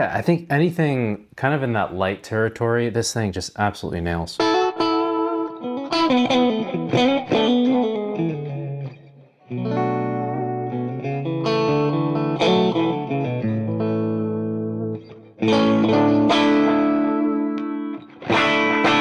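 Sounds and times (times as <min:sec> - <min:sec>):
electric guitar notes and chords: 0:04.4 - 0:19.0.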